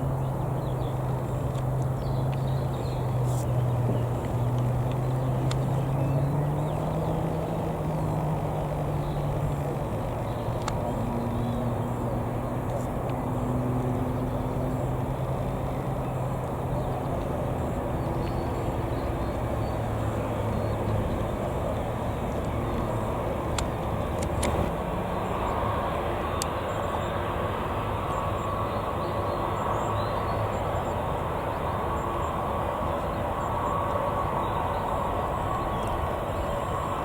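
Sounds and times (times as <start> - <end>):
jet engine rumble: 0.0 - 37.0.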